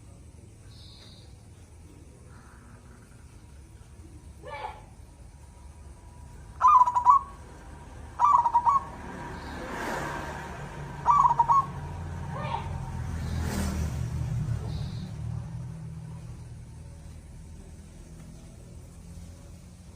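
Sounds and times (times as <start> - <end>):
dove cooing: 6.6 - 7.5, 8.2 - 9.0, 11.0 - 11.9.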